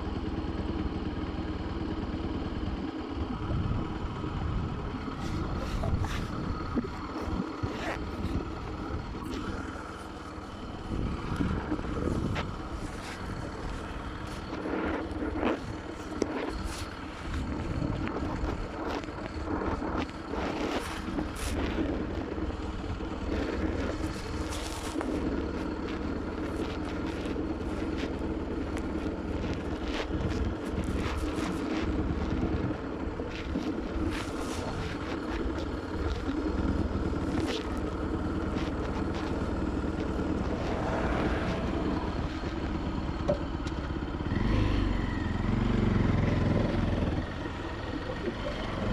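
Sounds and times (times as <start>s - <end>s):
motorcycle engine running: 0.0s - 48.9s
wind noise on microphone: 3.3s - 9.8s, 10.6s - 25.2s, 26.4s - 43.4s.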